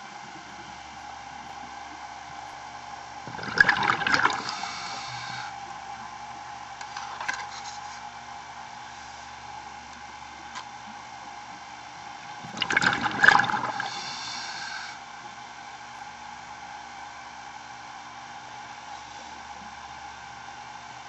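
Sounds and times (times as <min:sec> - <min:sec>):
underwater background noise: 0:00.0 - 0:16.7
underwater bubbles from exhaled breath: 0:03.3 - 0:05.5, 0:12.4 - 0:15.0.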